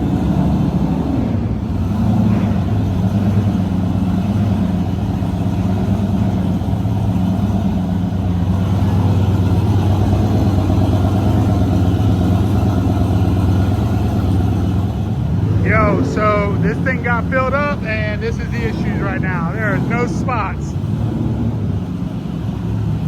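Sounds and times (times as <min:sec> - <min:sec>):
car engine running at low revs: 0:00.0 - 0:23.0.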